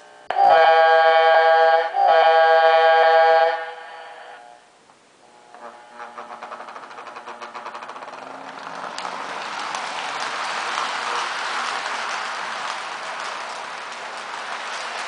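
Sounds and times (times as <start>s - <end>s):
model train motor whine: 5.2s - 15.0s
wheels clicking over track joints: 6.0s - 15.0s.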